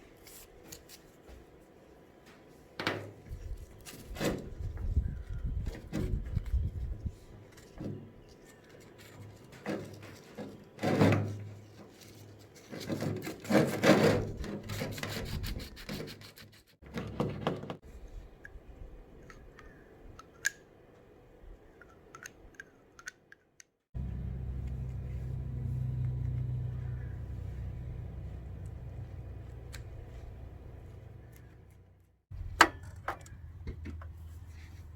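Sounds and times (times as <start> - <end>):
sandpaper scraping metal: 9.2 - 16.8
steady low hum: 24.0 - 34.9.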